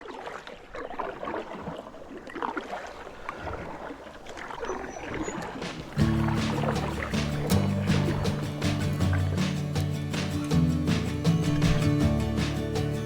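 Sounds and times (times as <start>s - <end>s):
water lapping and splashing: 0.0s - 13.0s
music: 6.0s - 13.0s.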